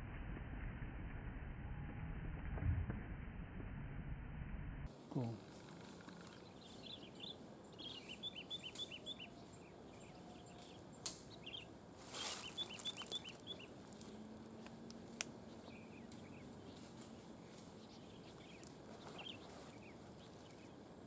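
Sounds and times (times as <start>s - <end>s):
small bird chirping: 5.1s - 20.8s.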